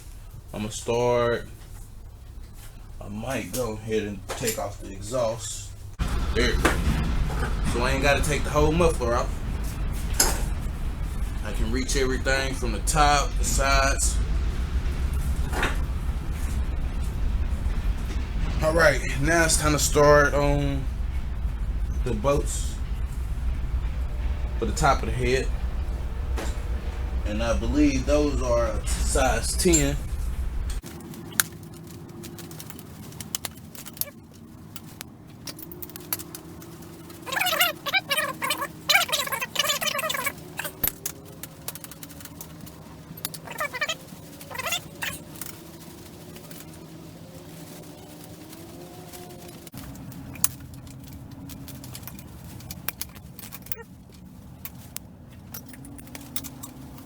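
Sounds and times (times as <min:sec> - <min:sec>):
faint steady hum: 0:00.0 - 0:57.0
metal tool clicks and clinks: 0:54.6 - 0:57.0.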